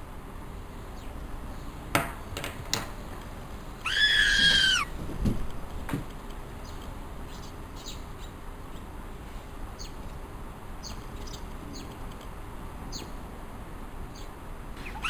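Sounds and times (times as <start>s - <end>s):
steady background hiss: 0.0s - 15.0s
small bird chirping: 6.6s - 8.4s, 10.8s - 12.0s, 14.1s - 15.0s.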